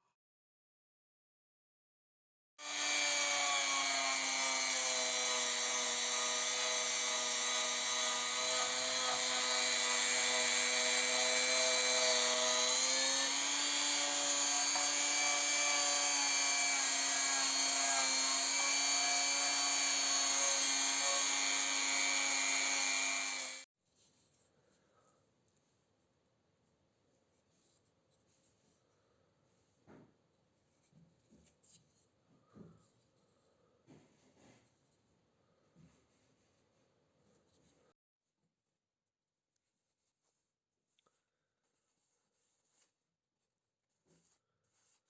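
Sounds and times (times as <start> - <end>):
electric power tool whining: 2.6 - 23.7.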